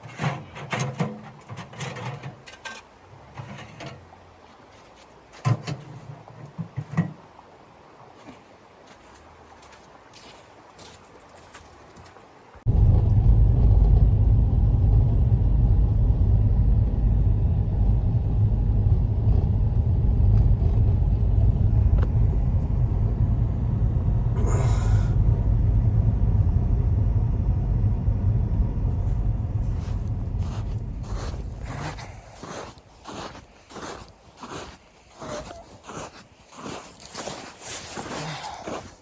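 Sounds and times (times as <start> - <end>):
strong wind rumbling: 12.6 - 36.8.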